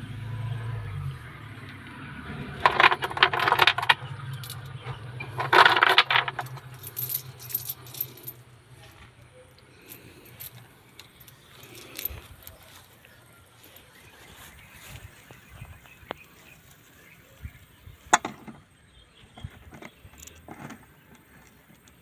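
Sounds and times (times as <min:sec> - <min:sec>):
metal clinking and rattling: 0:02.6 - 0:14.1, 0:18.1 - 0:18.6, 0:19.4 - 0:22.0.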